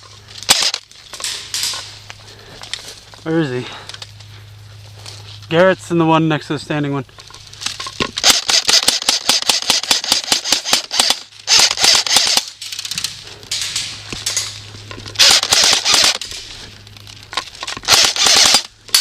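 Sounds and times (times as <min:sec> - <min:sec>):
airsoft guns firing full-auto: 0:00.5 - 0:00.8, 0:08.2 - 0:12.6, 0:15.2 - 0:16.2, 0:17.8 - 0:19.0.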